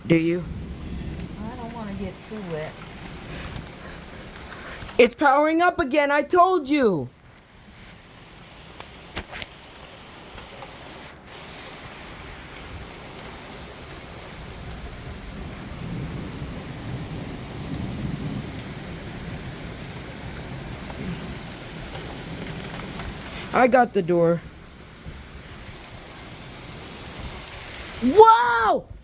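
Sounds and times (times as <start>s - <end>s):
low rumble of thunder: 0.0s - 5.0s, 13.9s - 28.1s, 28.8s - 29.0s
heavy rain pouring: 0.0s - 29.0s.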